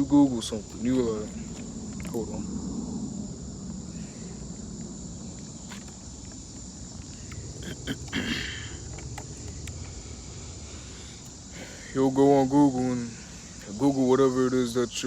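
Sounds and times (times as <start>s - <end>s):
insects trilling: 0.0s - 15.0s
faint clicks: 4.8s - 10.0s.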